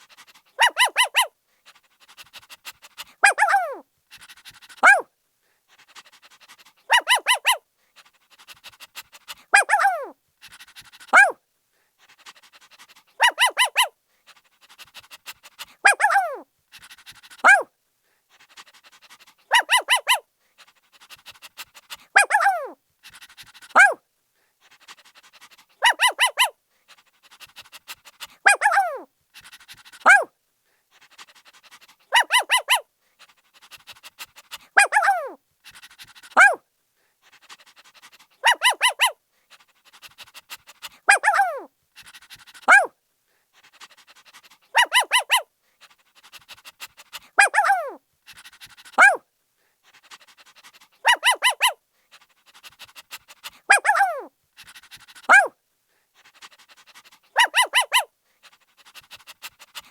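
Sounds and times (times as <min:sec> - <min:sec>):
puppy barking and yelping: 0:00.0 - 0:05.1, 0:06.0 - 0:07.6, 0:08.4 - 0:11.4, 0:12.3 - 0:14.0, 0:14.9 - 0:17.7, 0:18.6 - 0:24.0, 0:24.8 - 0:26.6, 0:27.3 - 0:30.3, 0:31.1 - 0:36.6, 0:37.4 - 0:43.0, 0:44.2 - 0:45.5, 0:47.2 - 0:49.2, 0:50.8 - 0:55.6, 0:56.4 - 0:58.1
puppy panting: 0:00.0 - 0:59.9.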